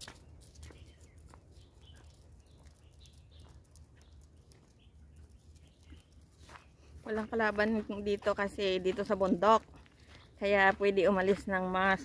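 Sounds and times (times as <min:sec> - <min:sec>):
faint bird chirps: 0:00.6 - 0:07.1.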